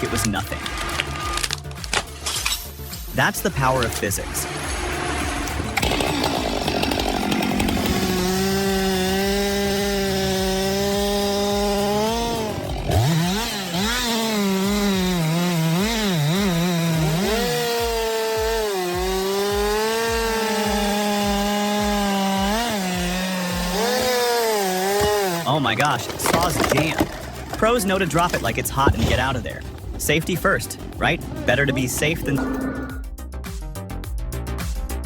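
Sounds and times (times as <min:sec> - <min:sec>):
chainsaw cutting wood: 0:00.0 - 0:02.8, 0:03.6 - 0:32.4.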